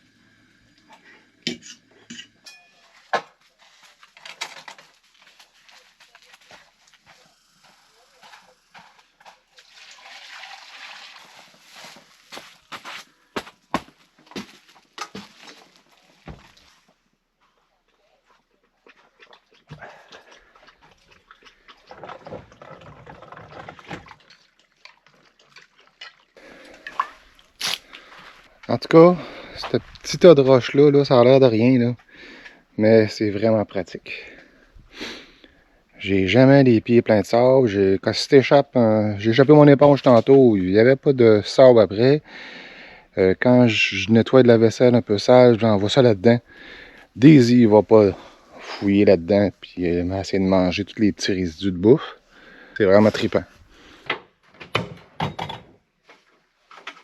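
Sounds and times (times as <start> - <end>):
dishes and cutlery clinking: 1.5 - 3.1
water splashing and pouring: 9.4 - 12.3, 18.9 - 26.4.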